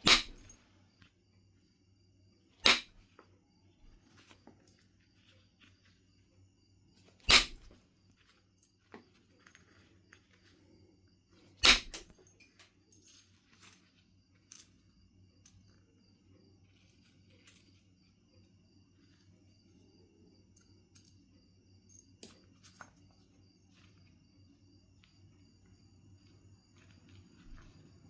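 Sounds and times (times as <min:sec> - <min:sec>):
sharp strikes on stone: 0:00.0 - 0:00.6, 0:02.6 - 0:03.0, 0:07.2 - 0:07.7, 0:11.6 - 0:12.1.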